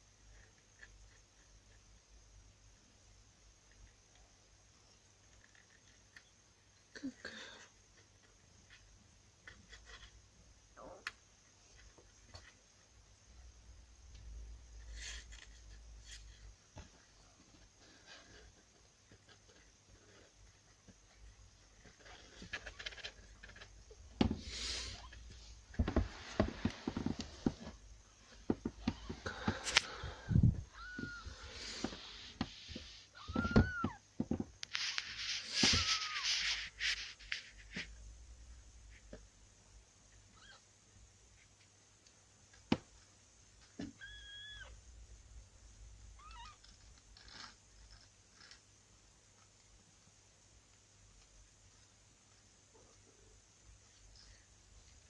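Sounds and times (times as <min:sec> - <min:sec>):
bedding rustle: 0:24.3 - 0:37.9.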